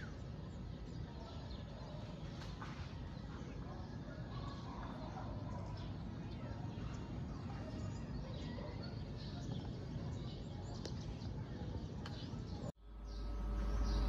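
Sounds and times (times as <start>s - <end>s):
outdoor background hum: 0.0s - 14.0s
small birds chirping: 0.0s - 14.0s
loud steady hum: 12.8s - 14.0s.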